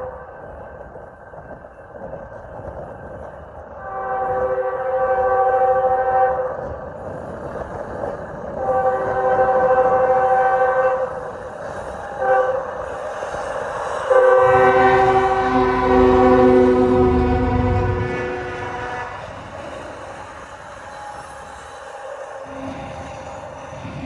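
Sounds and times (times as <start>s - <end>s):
wind on microphone: 0.0s - 21.6s
train rumble: 0.0s - 24.0s
locomotive air horn blasts: 3.8s - 6.5s, 8.6s - 11.2s, 12.2s - 12.8s, 14.1s - 19.9s.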